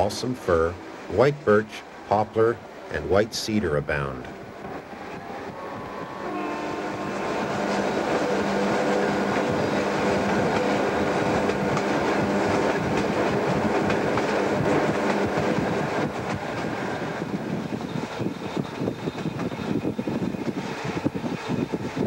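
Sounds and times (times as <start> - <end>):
locomotive engine drone: 0.0 - 22.0
wheels clicking over rails: 7.2 - 22.0.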